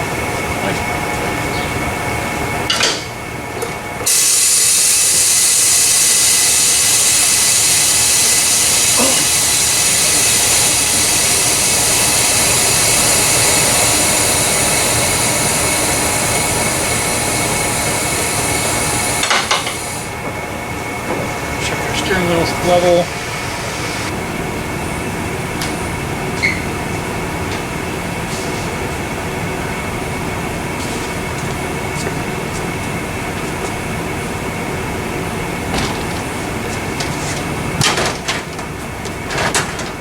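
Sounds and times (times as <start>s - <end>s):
mechanical hum with fixed tones: 0.0s - 40.0s
loud air hiss: 4.0s - 24.2s.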